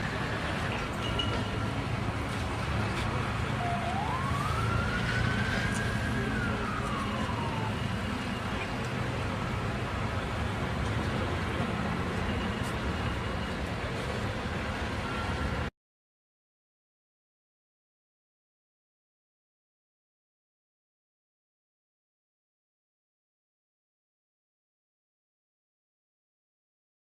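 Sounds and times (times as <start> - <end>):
emergency vehicle siren wail: 0.0 - 15.7
traffic and road noise: 0.0 - 15.7.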